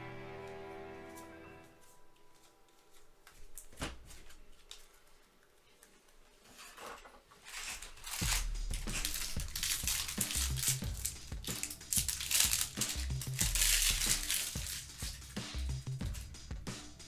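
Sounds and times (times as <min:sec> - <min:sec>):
handling of cards: 0:01.1 - 0:16.4
foil wrapper crinkling: 0:07.4 - 0:16.3.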